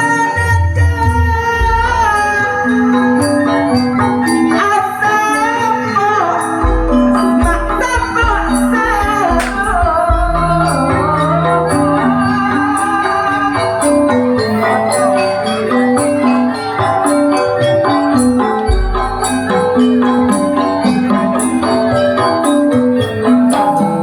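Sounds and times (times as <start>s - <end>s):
mallet-struck notes: 0.0s - 24.0s
deep drum beats: 6.6s - 11.4s, 18.5s - 19.8s.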